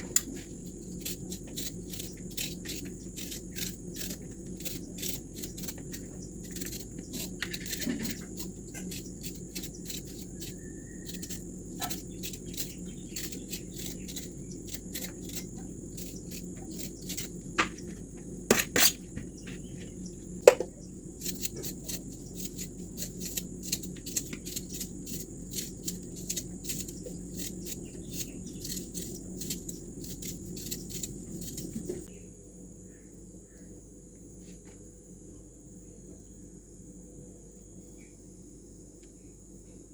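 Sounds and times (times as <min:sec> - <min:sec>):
insects shrilling: 0:00.0 - 0:17.6, 0:20.4 - 0:32.1
low background rumble: 0:00.0 - 0:18.5.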